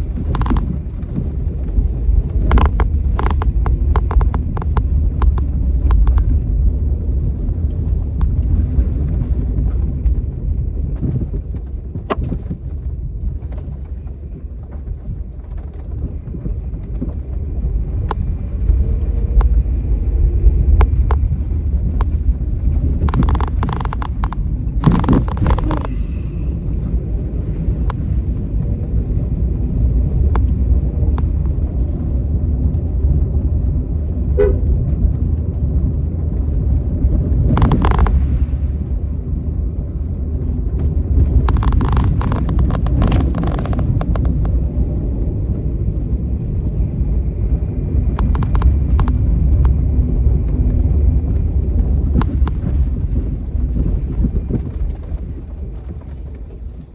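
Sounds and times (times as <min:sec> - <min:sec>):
strong wind: 0:00.0 - 0:56.9
traffic rumble: 0:00.0 - 0:56.9.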